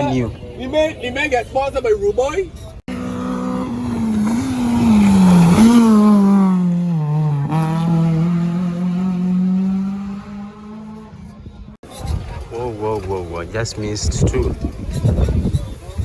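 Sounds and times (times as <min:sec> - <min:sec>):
rally car engine passing: 0:02.9 - 0:11.4.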